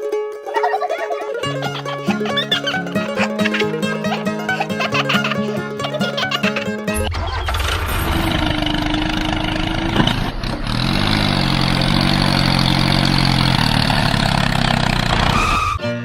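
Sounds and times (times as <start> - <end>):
tractor engine revving: 6.9 - 15.8.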